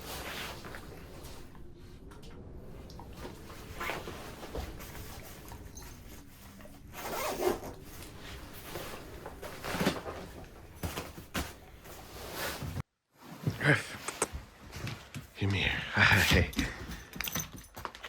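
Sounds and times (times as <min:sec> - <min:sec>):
fabric rustling: 0:03.2 - 0:13.6
zipper rasping: 0:06.9 - 0:07.9.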